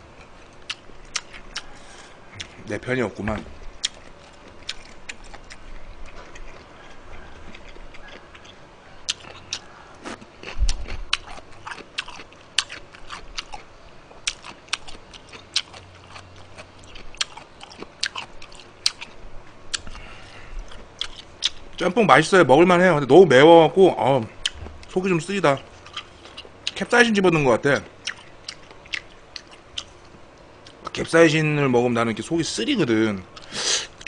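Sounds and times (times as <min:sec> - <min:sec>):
man chewing noodles: 0:00.0 - 0:02.7, 0:03.6 - 0:21.8, 0:25.7 - 0:26.8, 0:27.8 - 0:31.0, 0:33.3 - 0:34.0.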